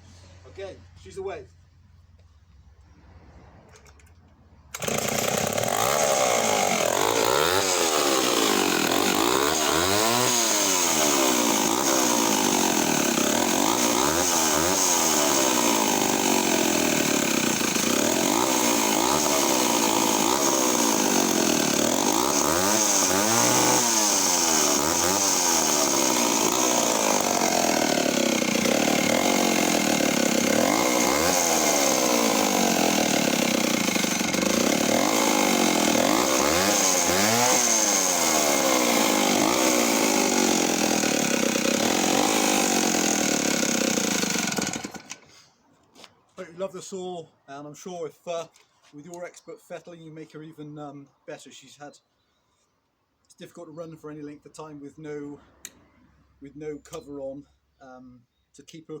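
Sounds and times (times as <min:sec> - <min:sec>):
chainsaw engine revving: 0:04.7 - 0:45.4.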